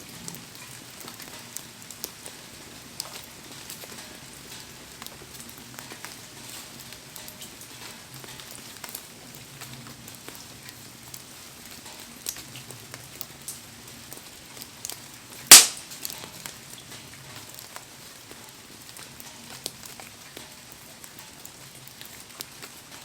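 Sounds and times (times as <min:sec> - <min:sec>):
wood fire crackling: 0:00.0 - 0:23.0
sharp fire pop: 0:15.5 - 0:15.9.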